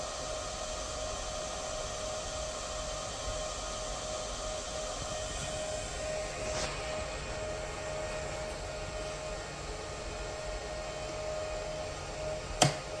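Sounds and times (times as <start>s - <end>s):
inverter drive whir and hiss: 0.0s - 13.0s
thin steady tone: 2.2s - 12.5s.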